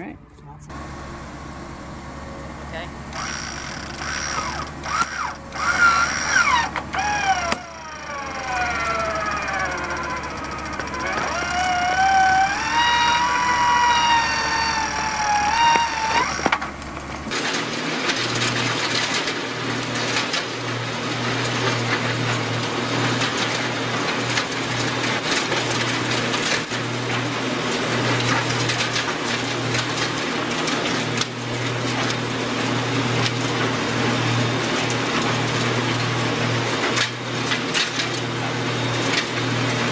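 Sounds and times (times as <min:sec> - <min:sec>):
wood shredder engine drone: 0:00.0 - 0:39.9
electric winch whining: 0:00.7 - 0:17.4.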